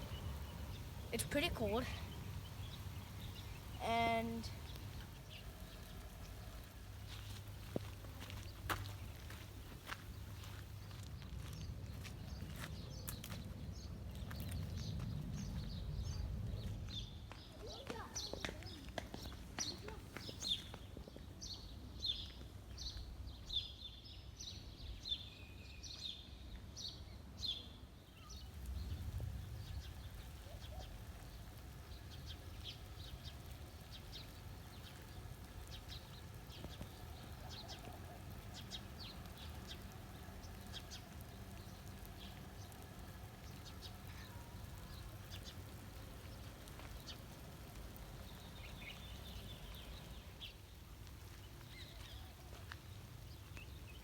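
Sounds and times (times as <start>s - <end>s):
rain falling: 0.0s - 12.2s, 17.6s - 20.9s, 28.4s - 54.0s
small birds chirping: 0.0s - 54.0s
low rumble: 28.5s - 32.4s.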